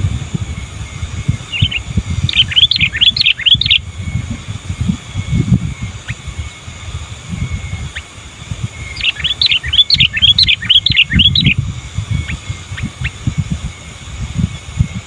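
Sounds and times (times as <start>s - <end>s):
bulbul singing chirps: 0.0s - 15.0s
low rumbling noise: 0.0s - 15.0s.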